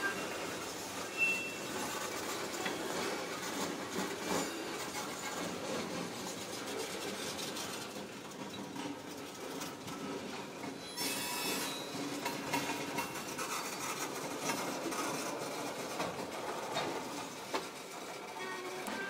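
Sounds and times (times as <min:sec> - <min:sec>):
high wheel squeals: 0:00.0 - 0:02.0, 0:10.8 - 0:12.2
freight train rolling past: 0:00.0 - 0:19.0.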